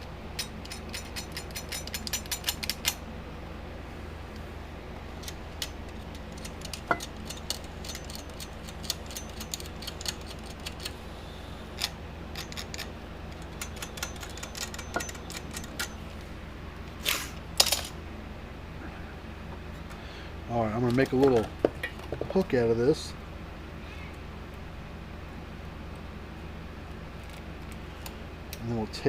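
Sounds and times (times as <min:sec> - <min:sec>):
steady low hum: 0:00.0 - 0:29.0
hand tools scraping wire: 0:00.3 - 0:03.0, 0:05.2 - 0:10.9, 0:11.8 - 0:16.0.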